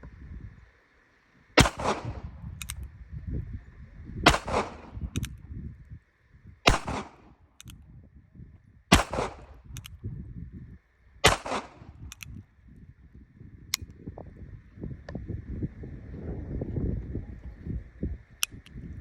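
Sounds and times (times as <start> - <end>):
revolver gunshots: 1.6 - 2.8, 4.3 - 5.3, 6.7 - 7.2, 8.9 - 9.9, 11.2 - 12.3.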